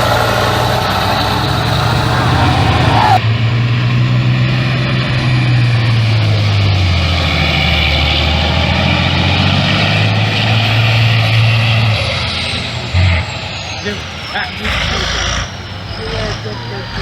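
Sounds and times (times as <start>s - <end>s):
truck diesel engine under load: 0.0s - 17.0s.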